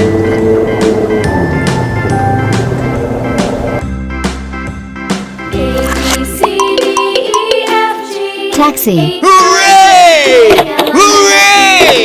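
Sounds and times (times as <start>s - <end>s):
background music with drum beat: 6.3s - 8.2s.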